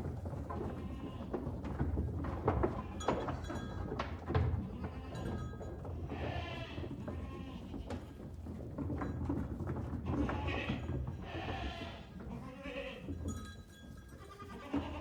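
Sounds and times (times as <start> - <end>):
farm animal bleating: 10.2 - 13.1, 14.2 - 15.0.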